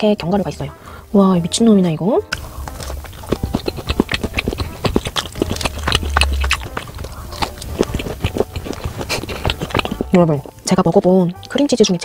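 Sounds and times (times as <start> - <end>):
person chewing bagel: 2.3 - 10.6
mouth clicks and smacks: 2.3 - 10.7.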